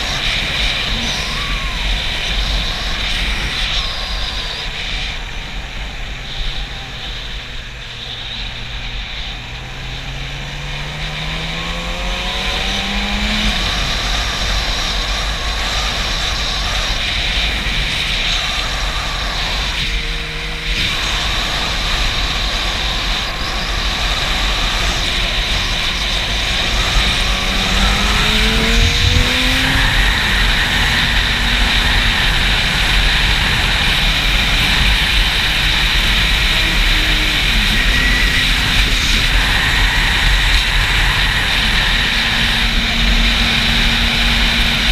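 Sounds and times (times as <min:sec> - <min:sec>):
motorcycle engine accelerating: 0:00.0 - 0:44.9
wind buffeting on microphone: 0:12.3 - 0:44.9.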